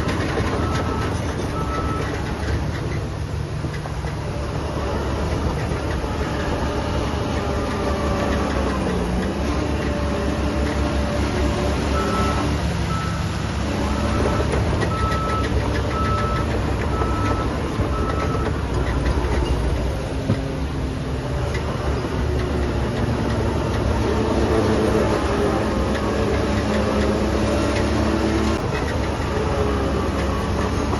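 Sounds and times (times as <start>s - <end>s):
diesel engine running: 0.0s - 30.9s
reversing alarm beeping: 11.9s - 13.3s, 13.9s - 18.6s.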